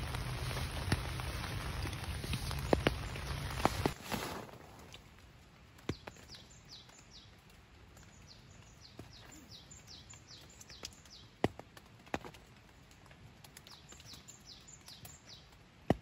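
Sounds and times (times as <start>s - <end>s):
songbird chirping: 5.8s - 11.4s, 12.8s - 15.6s.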